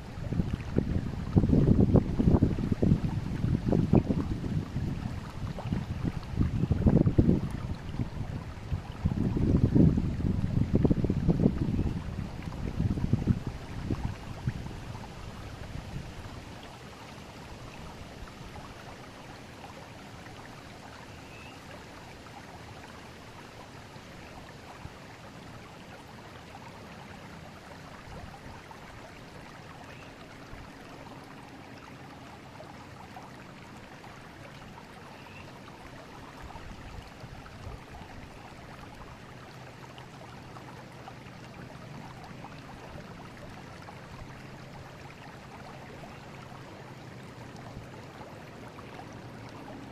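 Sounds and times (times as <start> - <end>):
river rushing: 0.0 - 49.9.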